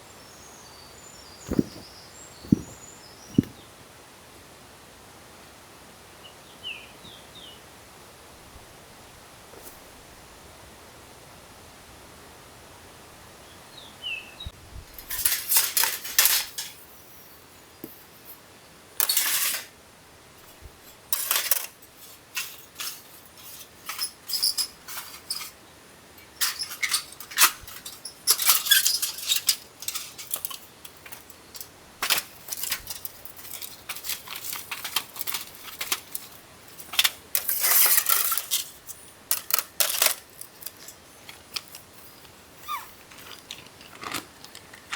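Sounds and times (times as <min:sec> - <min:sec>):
faint background hiss: 0:00.0 - 0:44.9
gear rustling: 0:01.4 - 0:03.6
hard items clinking and clattering: 0:01.4 - 0:03.6, 0:32.0 - 0:44.9.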